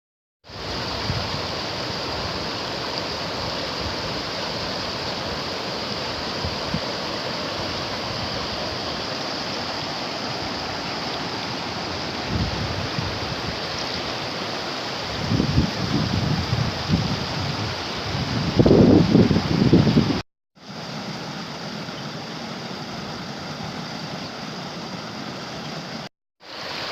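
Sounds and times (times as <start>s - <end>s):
rain falling: 0.5s - 20.2s
wind buffeting microphone: 11.9s - 13.7s, 15.1s - 20.2s.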